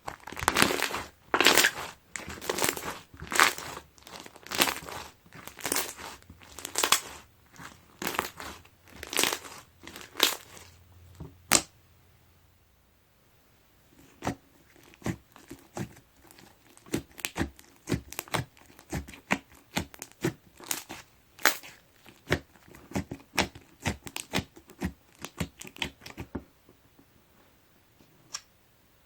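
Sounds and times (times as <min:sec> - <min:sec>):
slime with foam beads crackling: 0:00.0 - 0:10.8, 0:14.6 - 0:26.3.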